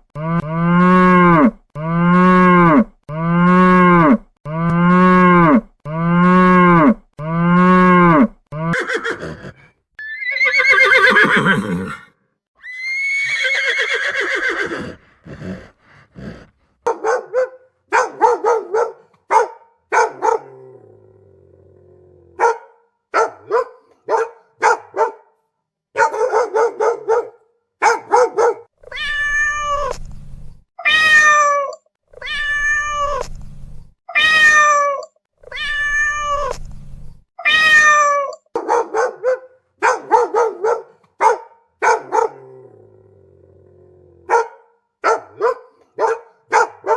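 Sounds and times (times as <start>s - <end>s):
cow mooing: 0.2s - 9.6s
cat meowing: 28.8s - 30.0s, 30.8s - 33.3s, 34.1s - 36.6s, 37.4s - 38.4s.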